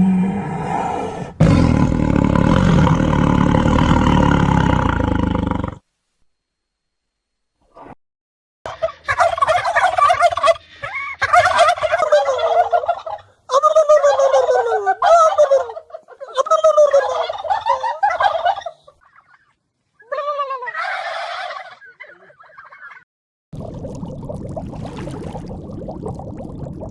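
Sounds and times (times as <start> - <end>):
turkeys gobbling: 8.7 - 23.0.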